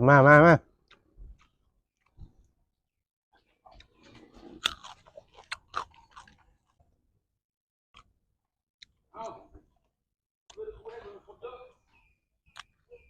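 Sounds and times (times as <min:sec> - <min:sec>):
person chewing crunchy food: 0:03.4 - 0:07.1.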